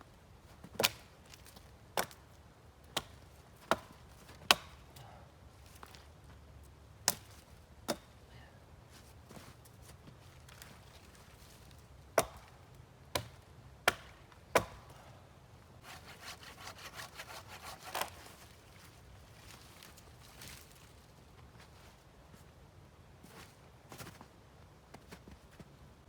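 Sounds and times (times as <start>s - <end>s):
sharp blows on wood: 15.8s - 18.1s
rasping strokes on wood: 15.8s - 18.2s.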